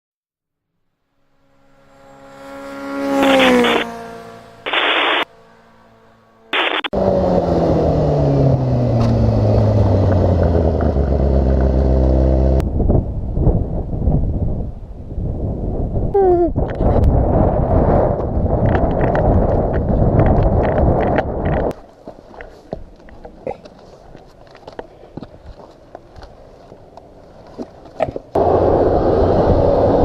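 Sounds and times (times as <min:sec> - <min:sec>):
motorcycle engine: 0:01.0 - 0:13.8, 0:28.4 - 0:30.0
rough noise: 0:01.3 - 0:07.0.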